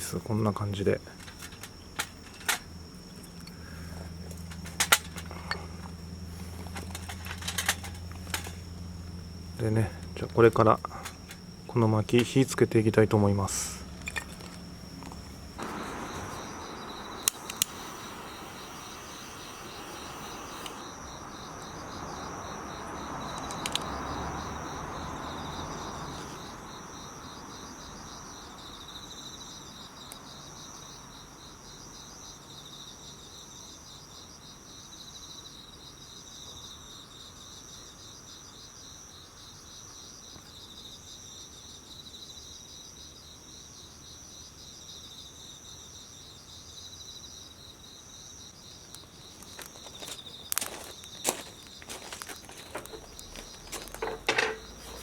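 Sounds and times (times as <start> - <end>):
insects chirping: 0.0 - 55.0
firewood clicks: 14.0 - 20.8, 49.5 - 55.0
rushing hiss of fire: 15.5 - 22.2.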